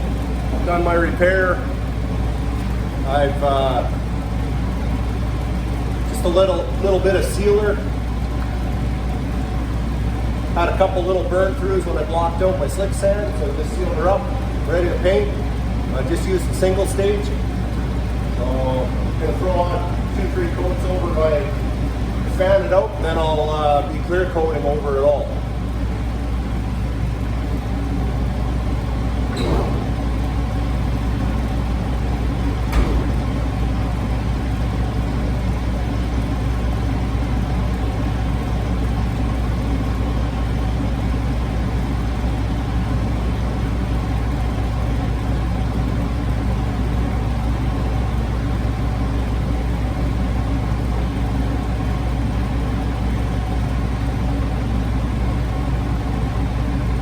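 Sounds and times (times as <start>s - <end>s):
motor drone with low hum: 0.0s - 57.0s
brief knocks: 29.3s - 31.0s, 32.6s - 33.7s.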